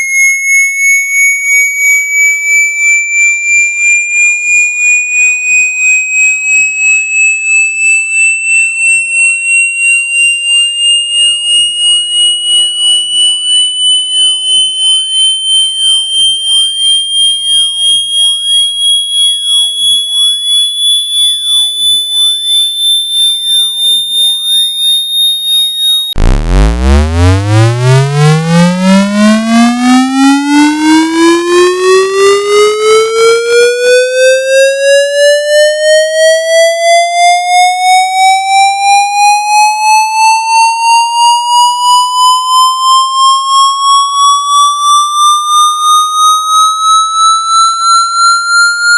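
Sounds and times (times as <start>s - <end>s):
pulsing high electronic tone: 11.2s - 34.0s, 41.5s - 48.9s
buzzy tone sweeping up: 26.2s - 29.3s.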